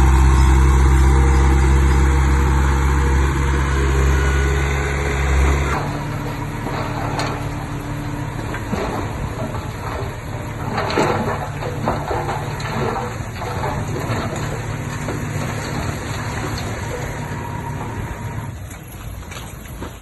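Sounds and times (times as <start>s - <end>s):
diesel engine running: 0.0s - 20.0s
metal clanks and scraping: 0.0s - 20.0s.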